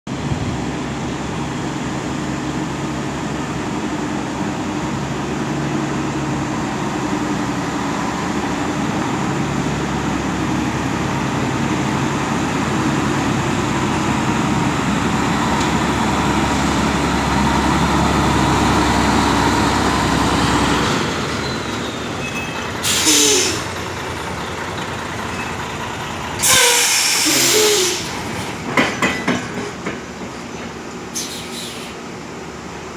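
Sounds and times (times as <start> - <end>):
diesel truck engine running: 0.1 - 28.8
air brake hissing: 22.8 - 23.8, 26.4 - 28.6, 31.1 - 32.0.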